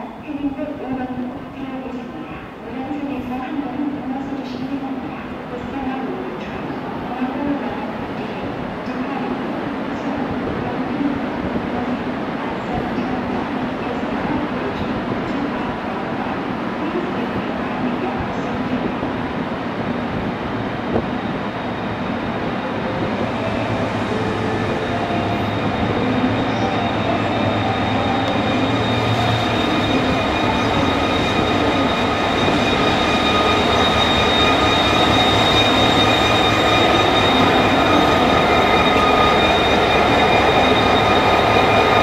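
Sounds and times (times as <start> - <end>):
diesel locomotive hauling train: 0.0 - 42.0
high-pitched squeal of brakes: 23.2 - 42.0.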